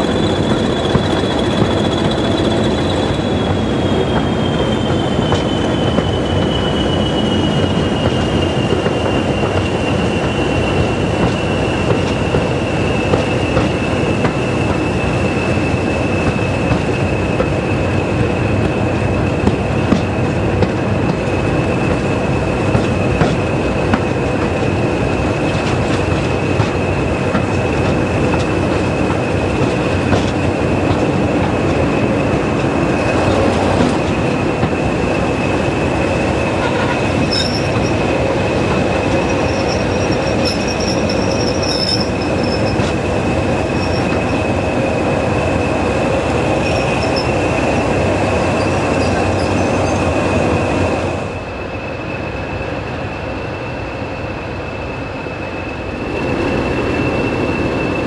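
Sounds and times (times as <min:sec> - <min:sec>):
diesel train engine noise: 0:00.0 - 0:58.0
wheels on rail: 0:00.0 - 0:58.0
high whine: 0:55.0 - 0:58.0.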